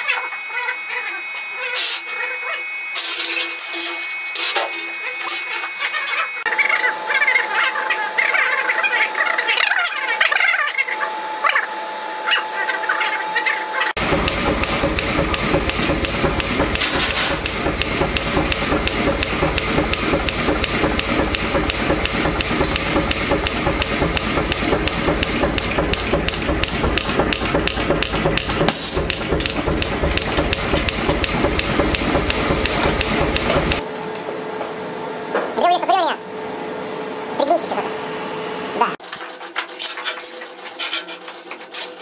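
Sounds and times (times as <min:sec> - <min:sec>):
steady running hum: 0:00.0 - 0:39.0
power hammer striking hot iron: 0:14.0 - 0:33.8.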